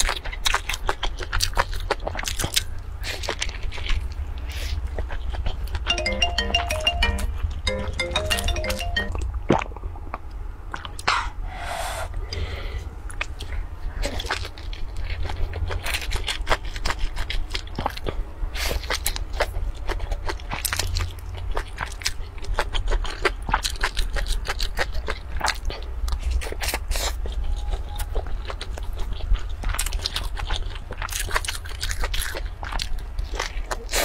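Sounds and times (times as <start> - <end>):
crisp crunching of food: 0.0 - 5.8, 13.1 - 18.2, 18.8 - 34.0.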